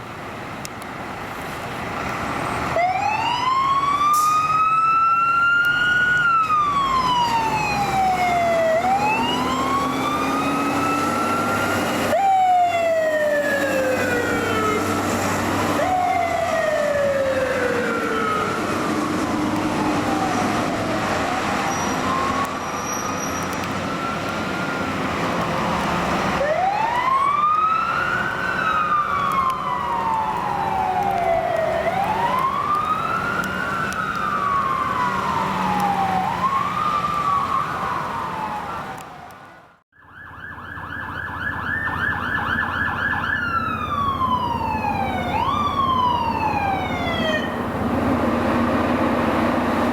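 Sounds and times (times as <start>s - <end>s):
low vehicle noise: 0.0s - 49.9s
emergency siren wailing: 2.3s - 49.9s
siren fast warble: 15.8s - 24.8s, 40.0s - 47.7s.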